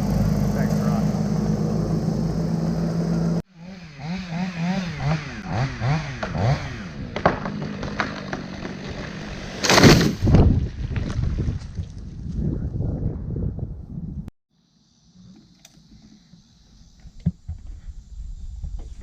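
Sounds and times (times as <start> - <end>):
machine engine running: 0.0 - 3.4
chainsaw revving: 0.0 - 10.2.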